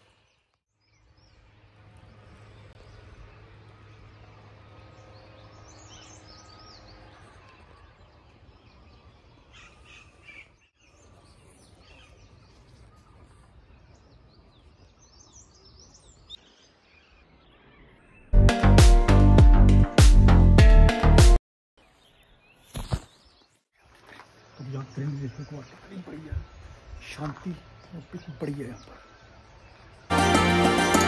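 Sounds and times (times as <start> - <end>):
small birds chirping: 0.0 - 18.4, 21.8 - 30.1
loud music with strong beat: 18.4 - 21.4.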